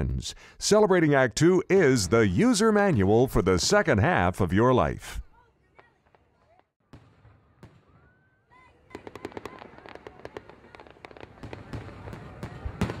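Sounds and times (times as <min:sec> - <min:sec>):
firework pops and crackle: 0:08.9 - 0:13.0.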